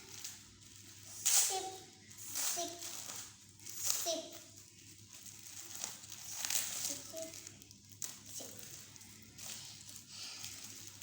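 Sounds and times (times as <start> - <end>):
packaging rustling and crinkling: 0.0 - 1.2, 2.6 - 11.0.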